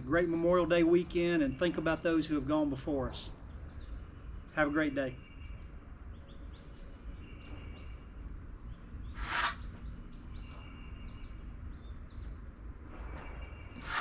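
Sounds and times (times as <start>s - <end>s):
small birds chirping: 0.2s - 14.0s
loud rasping burst: 9.2s - 9.6s, 13.8s - 14.0s.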